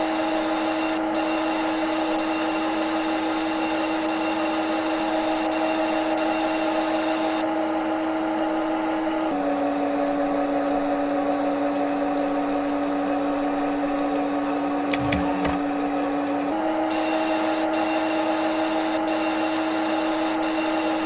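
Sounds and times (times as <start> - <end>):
machine tool humming: 14.9 - 15.7.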